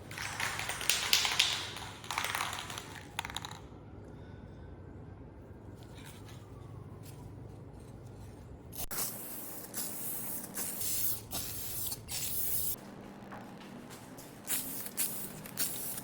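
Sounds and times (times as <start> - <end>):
spray hissing: 14.5 - 16.0.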